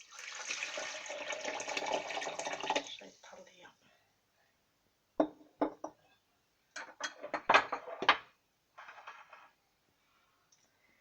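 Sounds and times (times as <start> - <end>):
dishes and utensils clattering: 6.8 - 9.6.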